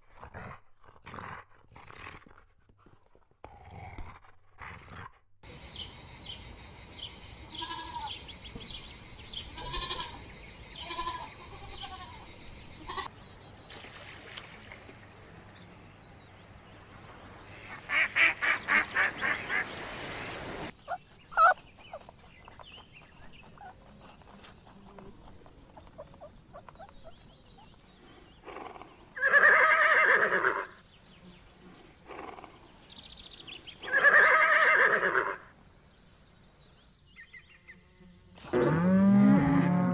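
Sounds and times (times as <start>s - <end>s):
farm animals calling: 7.5s - 8.2s, 9.4s - 13.1s, 20.7s - 30.8s, 33.8s - 35.5s.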